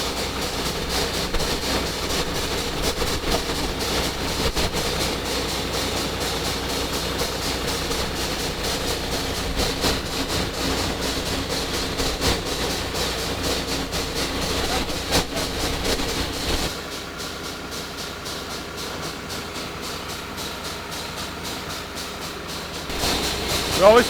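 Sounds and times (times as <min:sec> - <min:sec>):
drill rig engine droning: 0:00.0 - 0:16.8, 0:22.9 - 0:24.0.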